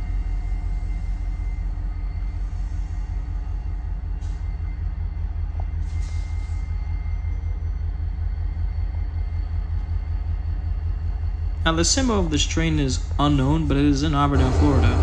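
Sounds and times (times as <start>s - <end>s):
faint steady hum: 8.1s - 15.0s
diesel locomotive engine rumbling: 11.0s - 15.0s.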